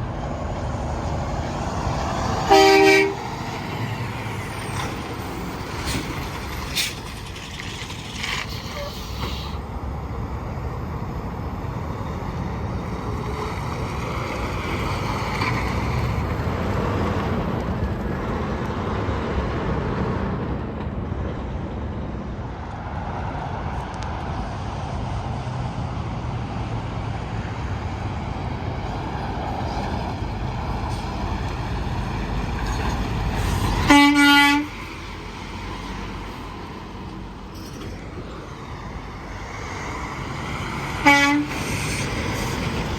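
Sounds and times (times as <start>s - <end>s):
heavy traffic rumble: 0.0s - 42.9s
truck horn blast: 2.4s - 3.4s, 33.8s - 34.8s, 41.0s - 41.7s.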